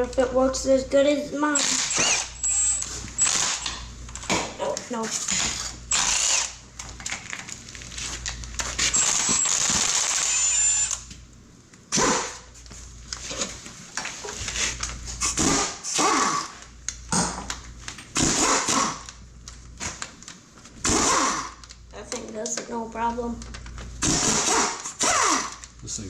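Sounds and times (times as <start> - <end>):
power tool whirring with high whine: 1.6 - 3.9, 5.1 - 6.6, 8.8 - 11.1, 24.0 - 25.7.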